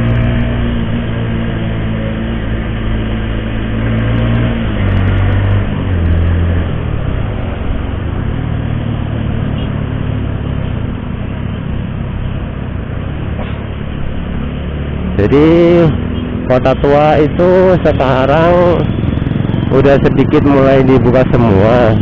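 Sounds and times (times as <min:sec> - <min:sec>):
road and wind noise: 0:00.0 - 0:22.0
motorcycle engine running: 0:15.2 - 0:22.0.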